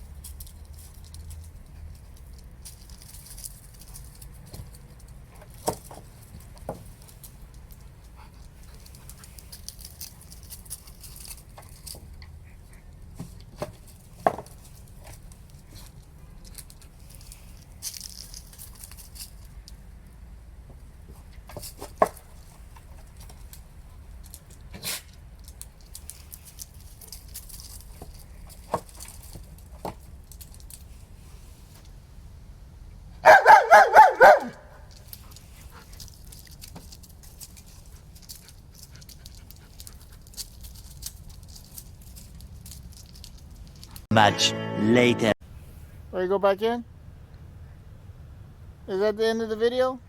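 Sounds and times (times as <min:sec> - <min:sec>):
dog barking: 0:33.2 - 0:34.7.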